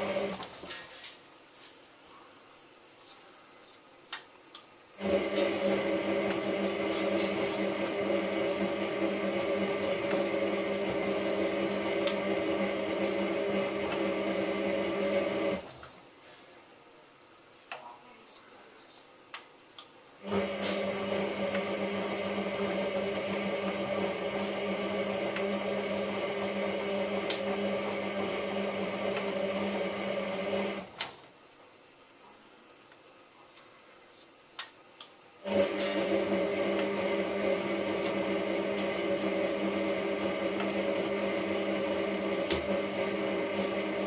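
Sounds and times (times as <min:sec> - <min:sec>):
washing machine motor humming: 0:00.0 - 0:00.5, 0:05.0 - 0:15.8, 0:20.2 - 0:31.0, 0:35.4 - 0:44.0.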